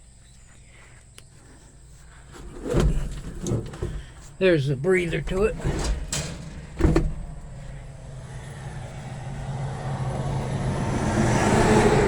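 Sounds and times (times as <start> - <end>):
motor vehicle passing: 5.3 - 12.0.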